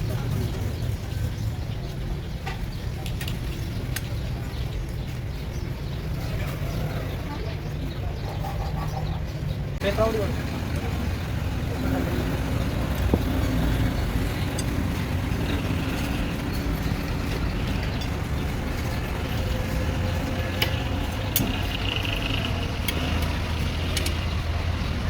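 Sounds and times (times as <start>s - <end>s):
low mechanical drone: 9.8s - 25.0s
sharp metallic clicks and taps: 14.3s - 24.5s.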